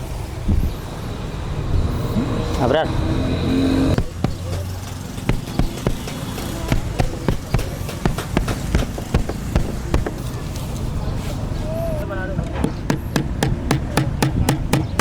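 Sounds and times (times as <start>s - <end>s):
sharp knocks on sofa frame: 4.0s - 10.4s, 12.6s - 15.0s.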